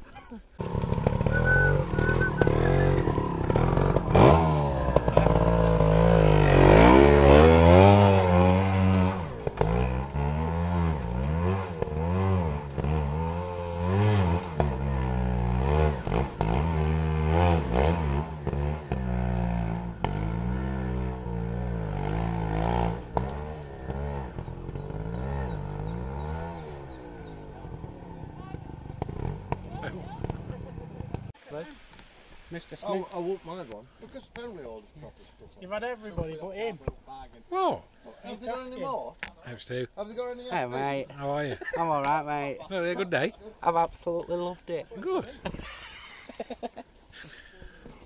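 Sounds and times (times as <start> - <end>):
motorcycle engine revving hard: 0.6 - 31.3.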